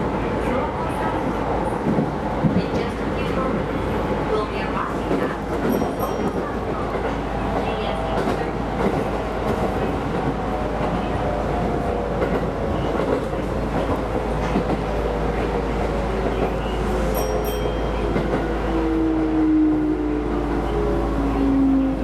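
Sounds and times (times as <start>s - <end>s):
electric train on rails: 0.0s - 22.0s.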